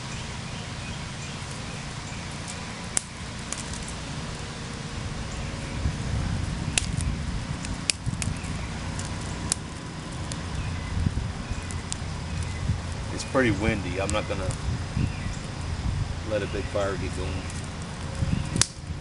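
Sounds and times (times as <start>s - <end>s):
wind buffeting microphone: 0.0s - 19.0s
wood fire crackling and popping: 1.3s - 19.0s.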